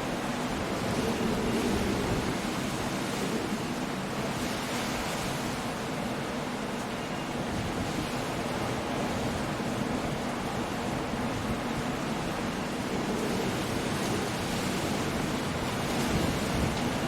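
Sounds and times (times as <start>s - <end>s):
wind noise: 0.0s - 5.7s, 10.1s - 17.0s.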